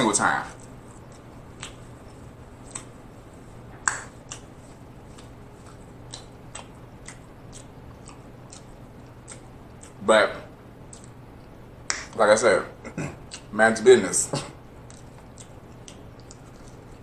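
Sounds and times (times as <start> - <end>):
person chewing food: 0.6 - 10.0, 10.8 - 11.6, 12.9 - 13.5, 14.7 - 17.0.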